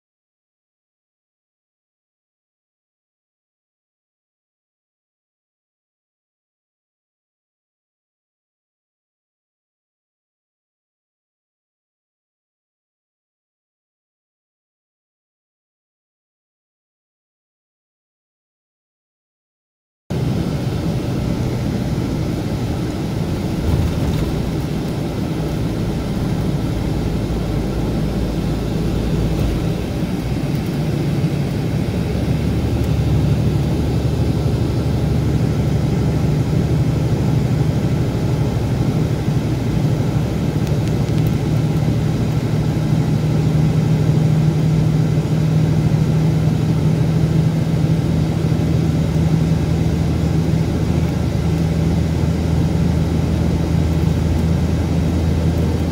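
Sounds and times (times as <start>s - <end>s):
diesel engine droning: 20.1s - 55.9s.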